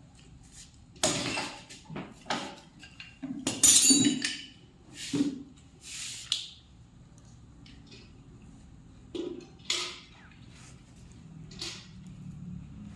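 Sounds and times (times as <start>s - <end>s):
metal tools clinking and clanking: 2.3s - 4.6s.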